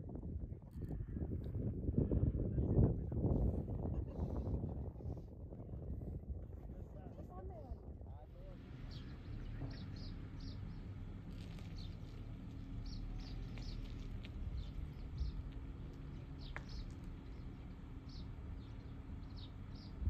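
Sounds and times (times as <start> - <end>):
low background rumble: 0.0 - 20.0
small birds chirping: 8.5 - 20.0.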